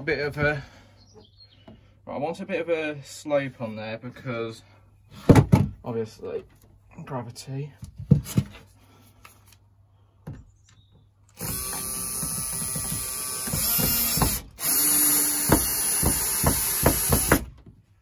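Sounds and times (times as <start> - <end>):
power drill running: 11.4 - 17.5.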